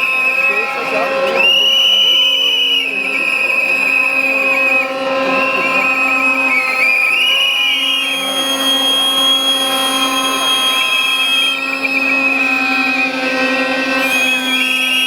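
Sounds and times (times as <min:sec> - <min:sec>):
low buzzing drone: 0:00.0 - 0:15.0
shrill whistling: 0:00.0 - 0:15.0.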